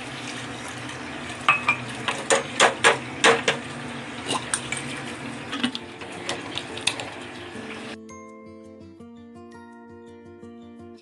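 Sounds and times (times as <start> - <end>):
utensil clinking against pot: 1.5 - 3.6.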